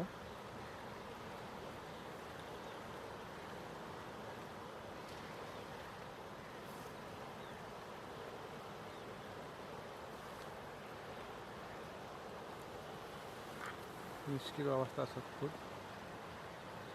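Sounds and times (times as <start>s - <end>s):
river water rushing: 0.0s - 16.9s.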